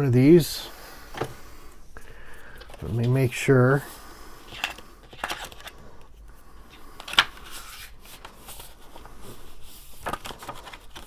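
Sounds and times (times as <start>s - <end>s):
paper and tape rustling: 2.2s - 11.0s.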